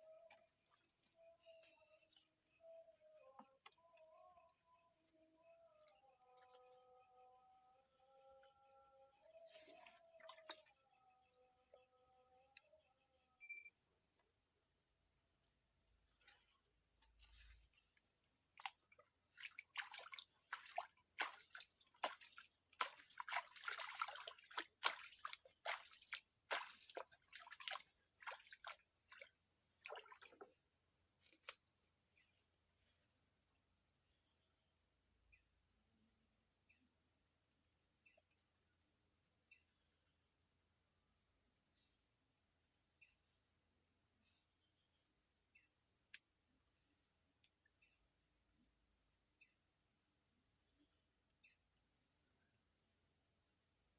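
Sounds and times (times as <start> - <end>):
crickets chirping: 0.0 - 53.9.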